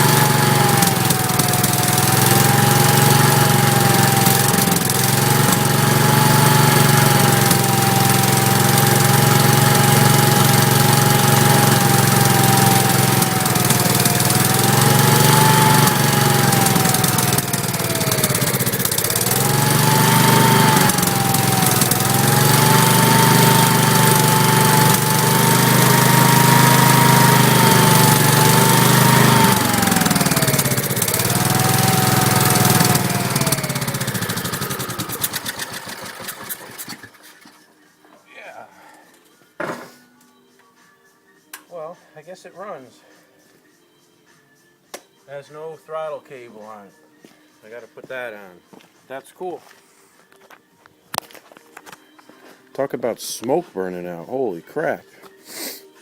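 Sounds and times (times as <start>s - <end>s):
tractor engine running: 0.0s - 37.5s.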